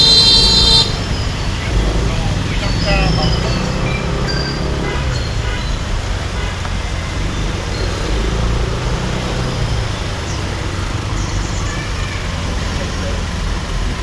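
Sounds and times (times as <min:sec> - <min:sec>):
short high-pitched tones: 0:00.0 - 0:01.3
rumble of engines and road noise: 0:00.0 - 0:14.0.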